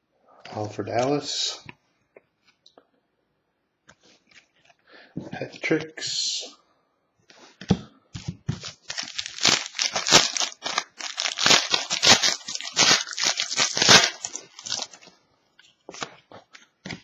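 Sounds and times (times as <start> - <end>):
wrapper tearing and crinkling: 8.6 - 15.1.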